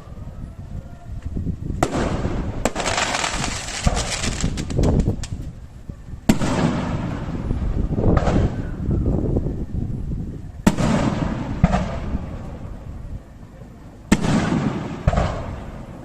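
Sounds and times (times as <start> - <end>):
low rumble and crackle: 0.0 - 16.0
firework shells bursting: 1.8 - 5.5.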